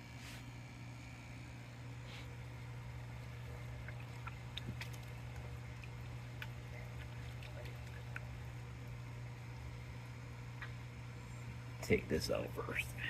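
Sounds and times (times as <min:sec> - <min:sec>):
steady low hum: 0:00.0 - 0:13.0
water sloshing in bucket: 0:02.4 - 0:08.5
small clicks and drips: 0:03.0 - 0:09.1.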